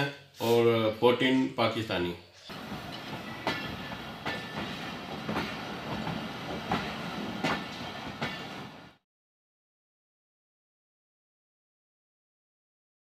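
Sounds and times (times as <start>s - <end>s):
train coaches rumbling past: 2.5s - 9.0s
wheels clacking over rail joints: 2.5s - 9.0s.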